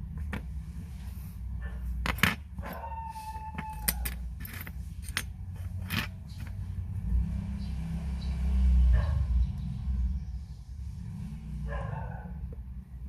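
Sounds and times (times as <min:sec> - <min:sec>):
small metal tools clicking: 0:03.6 - 0:06.4.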